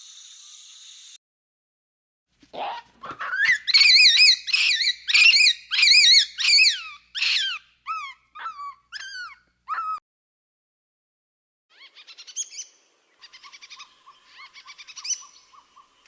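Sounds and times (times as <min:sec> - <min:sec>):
animal warbling calls and yelps: 0:02.5 - 0:10.0, 0:13.2 - 0:16.0.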